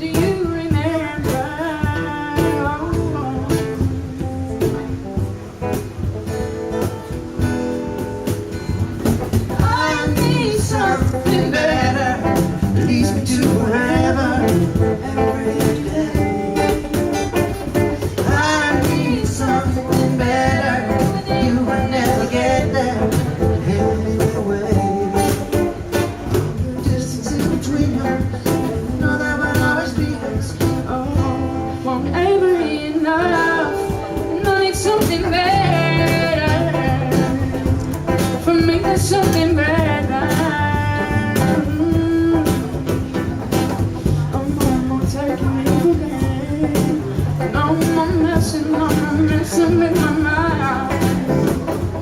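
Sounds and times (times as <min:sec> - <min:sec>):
person singing: 0:00.0 - 0:04.8, 0:09.5 - 0:52.0
cajon beat: 0:00.0 - 0:52.0
strummed acoustic guitar: 0:00.0 - 0:52.0.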